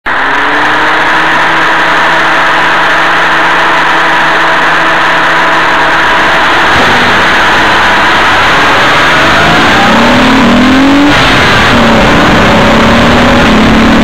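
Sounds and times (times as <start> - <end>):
car engine humming: 0.0 - 14.0
fans rushing: 0.1 - 14.0.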